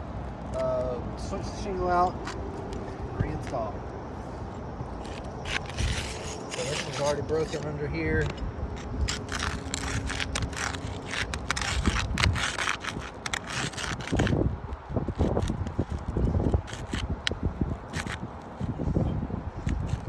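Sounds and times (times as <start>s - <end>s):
putty knife scraping shingles: 4.3s - 20.0s
sealant strip crackling and tearing: 4.5s - 19.0s, 19.6s - 20.0s.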